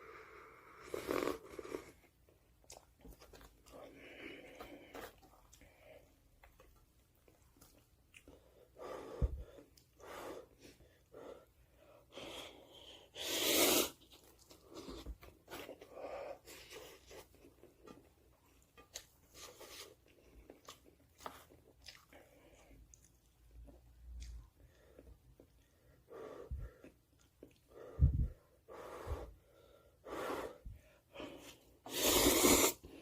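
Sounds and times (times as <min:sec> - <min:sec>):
person slurping noodles: 0:00.8 - 0:02.0, 0:13.0 - 0:14.1, 0:31.9 - 0:33.0
chewing: 0:02.6 - 0:08.5, 0:14.0 - 0:15.9, 0:16.5 - 0:25.8.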